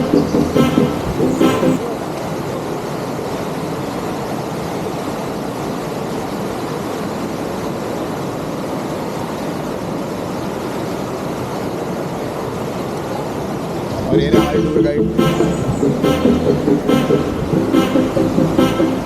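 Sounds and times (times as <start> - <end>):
waterfall rushing: 13.4 - 19.0.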